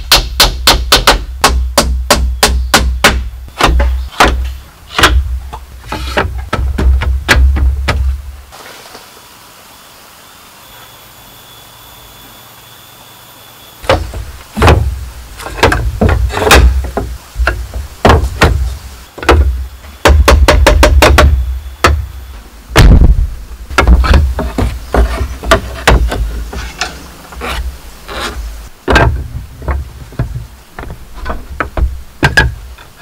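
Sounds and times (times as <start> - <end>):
heavy knocks on bamboo: 0.0 - 8.3, 13.8 - 27.6, 28.8 - 32.8.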